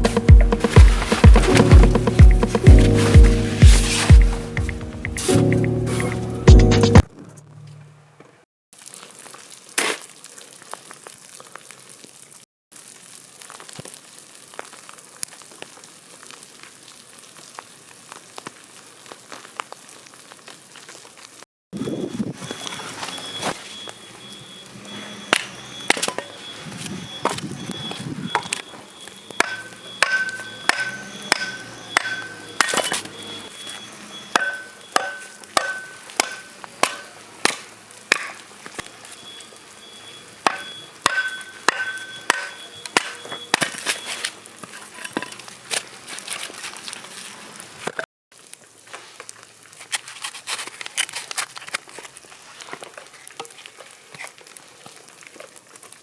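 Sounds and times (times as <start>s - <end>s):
axe chopping wood: 29.4s - 33.0s, 34.4s - 38.4s, 40.5s - 43.8s.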